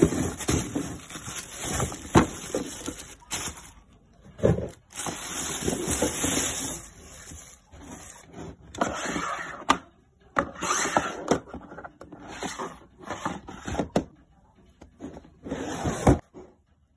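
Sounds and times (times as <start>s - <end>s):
packaging rustling and crinkling: 0.0s - 3.9s, 4.7s - 8.2s.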